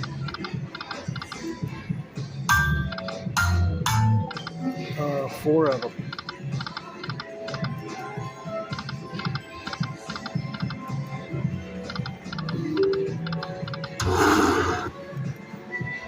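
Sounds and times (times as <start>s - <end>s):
slot machine music: 2.5s - 7.8s, 8.8s - 15.1s.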